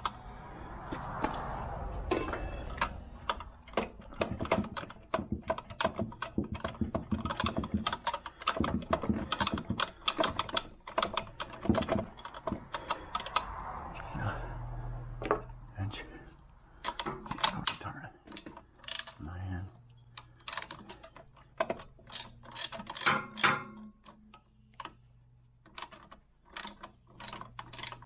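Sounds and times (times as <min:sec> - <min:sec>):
socket ratchet clicking: 0:22.0 - 0:24.2.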